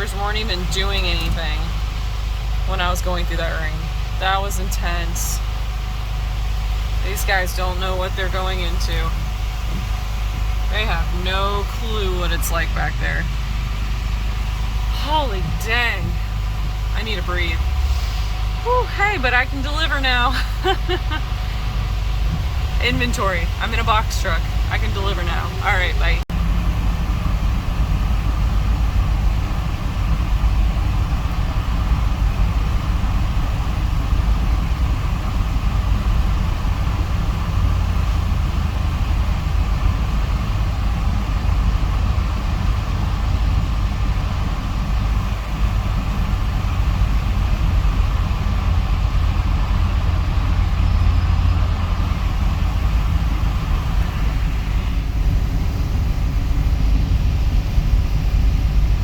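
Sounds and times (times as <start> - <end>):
truck engine and road rumble: 0.0 - 59.0.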